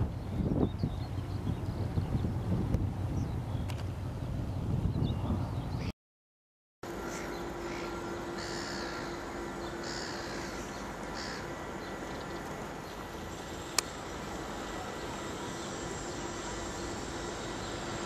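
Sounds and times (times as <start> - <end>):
boat engines humming: 0.0 - 5.8, 6.8 - 18.0
bird calling: 7.0 - 13.0.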